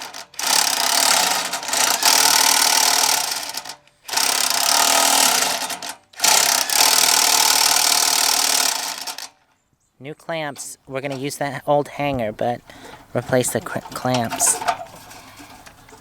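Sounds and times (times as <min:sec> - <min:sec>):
power tool running: 0:00.0 - 0:09.4.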